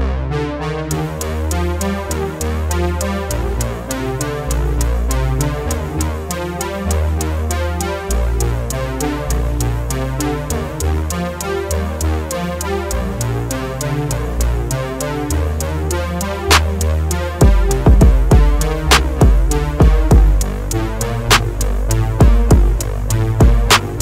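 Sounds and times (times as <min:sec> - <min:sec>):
bass line: 0:00.0 - 0:24.0
synthesizer chords: 0:00.0 - 0:24.0
drum machine beat: 0:00.9 - 0:07.5, 0:15.3 - 0:24.0
crisp hi-hat pattern: 0:00.9 - 0:24.0.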